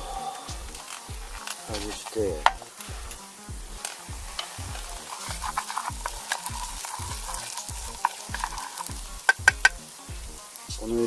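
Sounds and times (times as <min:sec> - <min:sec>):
food sizzling in a pan: 0:00.0 - 0:11.0
utensil scraping a pan: 0:00.8 - 0:09.9
sharp clicks: 0:02.4 - 0:10.8.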